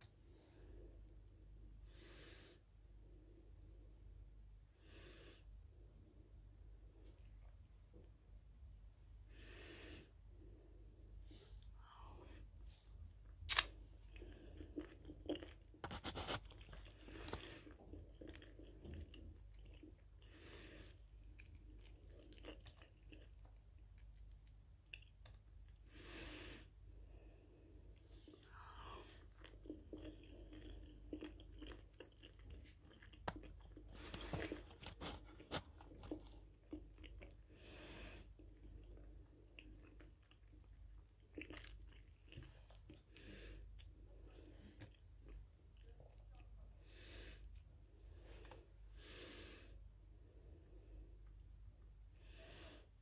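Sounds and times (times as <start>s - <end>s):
close-up chewing: 12.8s - 25.9s, 27.8s - 46.7s
wet mouth clicks and smacks: 13.5s - 13.8s.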